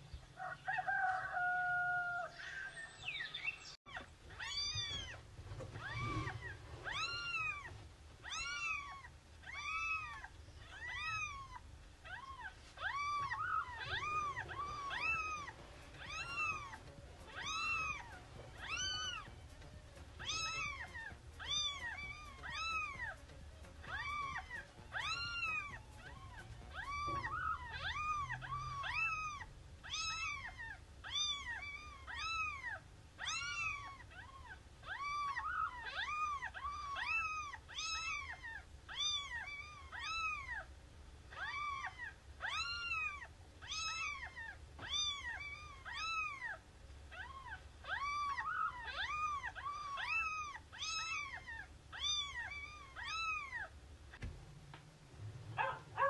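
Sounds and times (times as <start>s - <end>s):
cat mewing: 5.8s - 40.7s.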